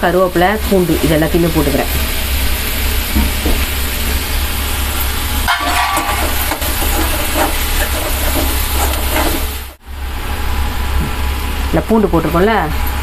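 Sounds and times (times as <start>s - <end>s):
onions sizzling in hot oil: 0.0s - 9.8s
metal ladle scraping and stirring: 5.5s - 9.8s.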